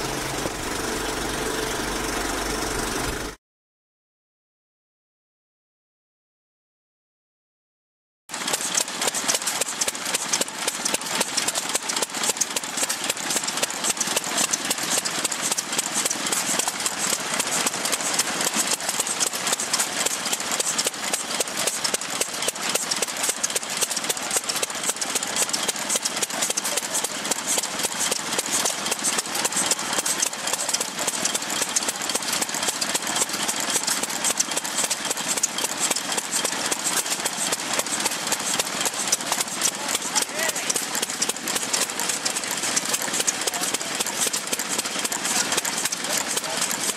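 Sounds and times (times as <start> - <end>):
gas engine ticking: 0.0 - 3.4, 8.3 - 46.9.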